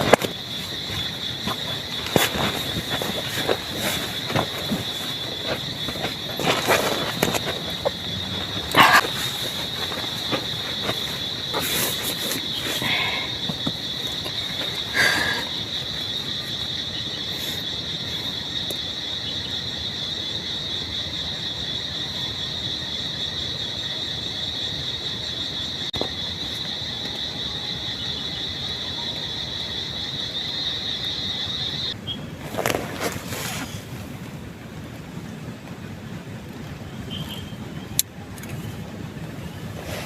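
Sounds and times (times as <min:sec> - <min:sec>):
short rustling: 0:00.0 - 0:15.4, 0:32.4 - 0:33.9
high-pitched insect trill: 0:00.0 - 0:32.2
rain hiss: 0:32.3 - 0:40.0.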